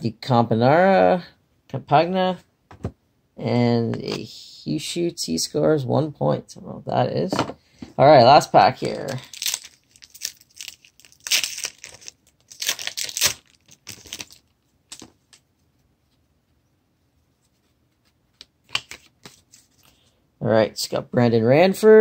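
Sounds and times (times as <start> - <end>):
card pack wrapper tearing: 8.8 - 15.1, 18.6 - 19.7.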